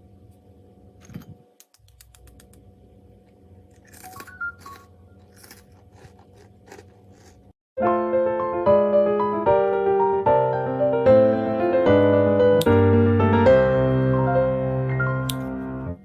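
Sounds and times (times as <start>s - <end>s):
low hum: 0.0s - 7.3s
bread cubes crunching: 3.7s - 7.5s.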